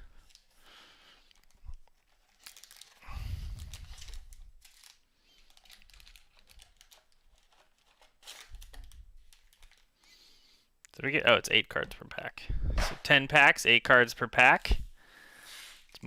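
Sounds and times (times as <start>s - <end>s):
plastic wrapping crinkling and tearing: 0.2s - 0.6s, 1.2s - 10.0s.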